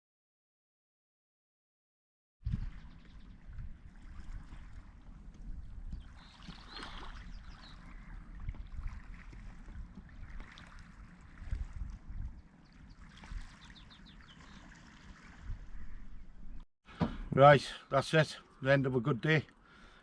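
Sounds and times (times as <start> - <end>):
wind rumbling on microphone: 2.4 - 16.6
faint moving water: 2.4 - 20.0.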